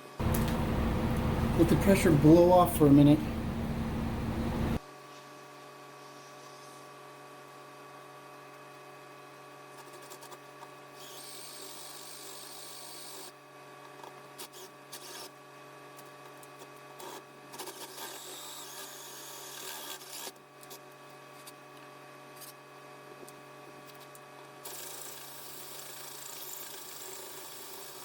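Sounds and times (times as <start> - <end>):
low electrical hum: 0.0 - 6.8.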